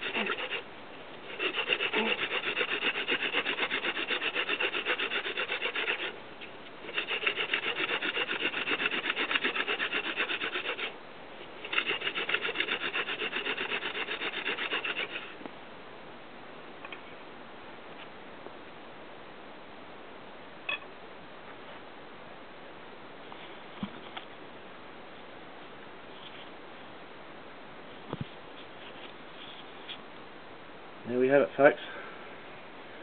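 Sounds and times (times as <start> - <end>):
hand drill spindle rubbing wood: 0.0 - 0.6, 1.3 - 6.1, 6.8 - 10.9, 11.6 - 15.3.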